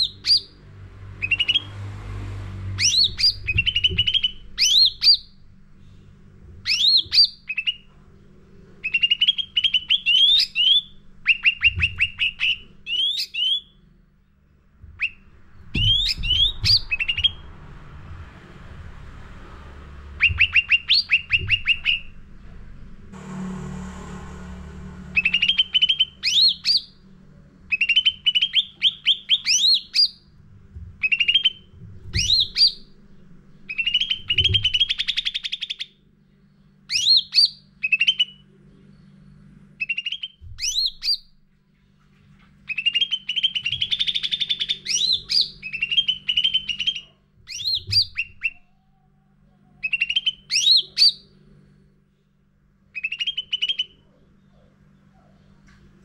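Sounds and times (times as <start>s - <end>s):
songbird chirping and whistling: 0.0s - 0.6s, 1.2s - 1.8s, 2.7s - 5.4s, 6.6s - 7.9s, 8.8s - 13.9s, 14.9s - 17.5s, 20.1s - 22.2s, 25.1s - 27.0s, 27.7s - 30.3s, 31.0s - 33.0s, 33.6s - 36.0s, 36.9s - 41.3s, 42.6s - 51.4s, 52.9s - 55.6s
faint low hum: 0.0s - 56.0s.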